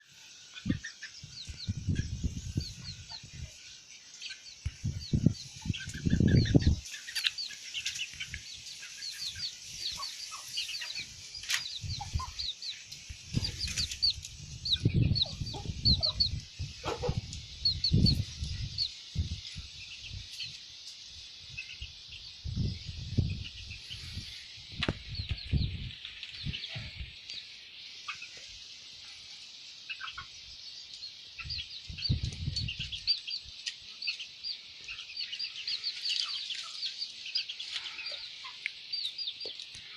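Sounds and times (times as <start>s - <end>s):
steady high hiss: 0.0s - 39.9s
chickens clucking: 0.1s - 39.9s.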